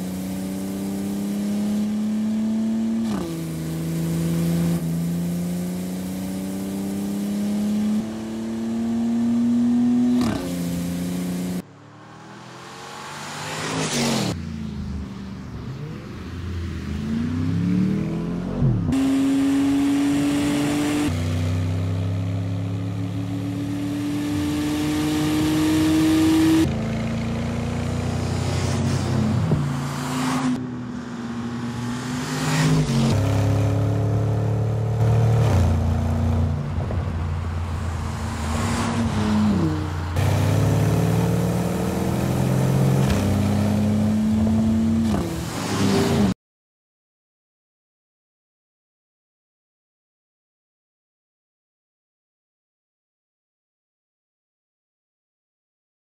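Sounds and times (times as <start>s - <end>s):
car engines accelerating: 0.0s - 46.4s
cars sweeping past: 10.1s - 21.2s, 23.8s - 46.4s.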